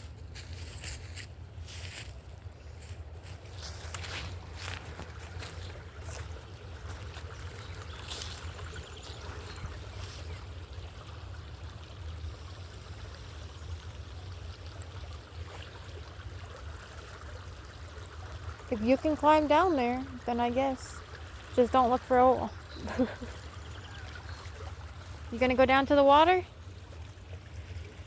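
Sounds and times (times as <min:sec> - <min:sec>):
stream water rushing: 0:03.1 - 0:28.0.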